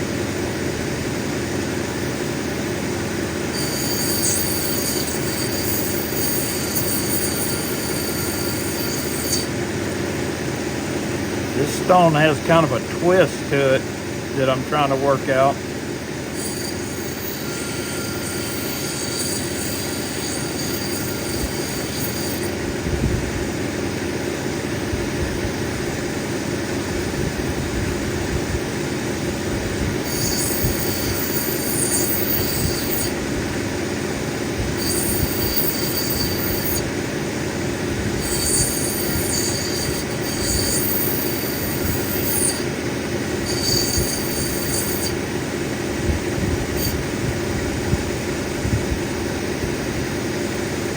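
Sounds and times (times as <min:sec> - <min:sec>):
grinding wheel running: 0:00.5 - 0:22.9, 0:28.8 - 0:47.5
stone squealing on grinding wheel: 0:02.0 - 0:10.1, 0:14.7 - 0:22.6, 0:30.0 - 0:33.3, 0:34.7 - 0:37.0, 0:38.0 - 0:45.3, 0:46.6 - 0:47.2.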